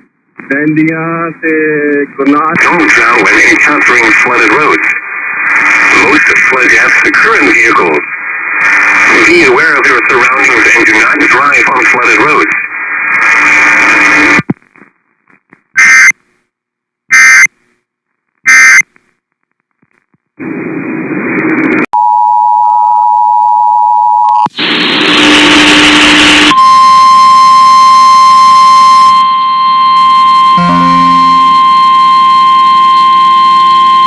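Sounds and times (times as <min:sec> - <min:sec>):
burst of static: 0:02.2 - 0:15.0, 0:24.5 - 0:26.6
two-tone attention signal: 0:26.5 - 0:34.0
steady alert tone: 0:30.6 - 0:32.4.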